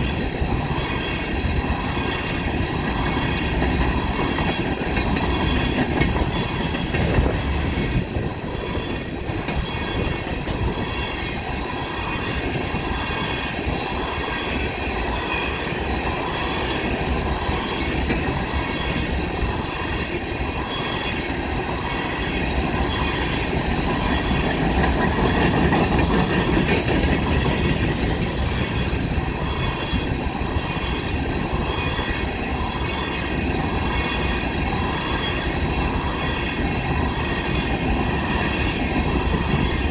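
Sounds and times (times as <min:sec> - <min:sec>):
steel wheels squealing on rail: 0:00.0 - 0:39.9
wheels clacking over rail joints: 0:02.8 - 0:08.0, 0:23.5 - 0:30.0.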